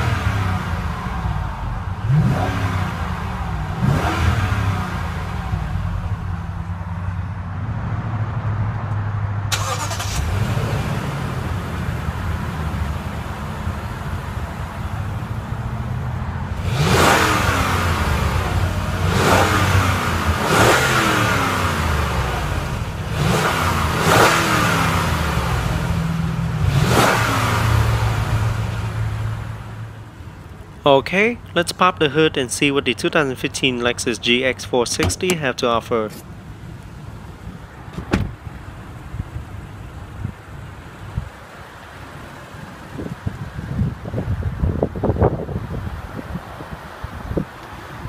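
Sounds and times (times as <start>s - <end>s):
engine revving: 0.0s - 6.4s, 9.5s - 13.6s, 16.5s - 29.8s
car engine idling: 0.0s - 7.8s, 9.5s - 44.4s.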